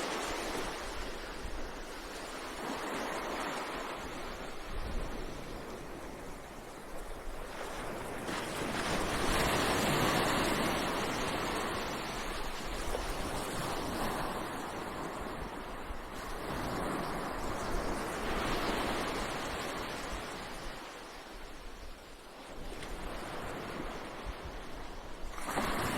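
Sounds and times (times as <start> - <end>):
ocean waves breaking: 0.0 - 15.8.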